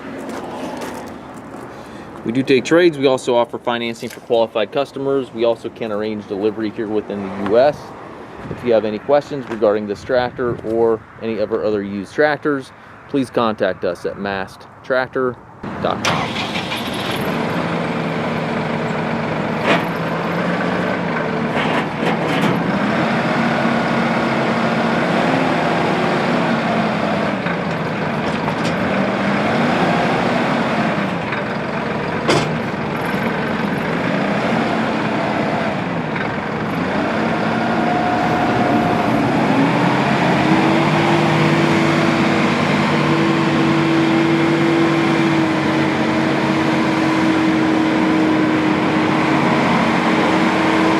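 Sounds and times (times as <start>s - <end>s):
tractor diesel engine running: 15.6s - 50.9s.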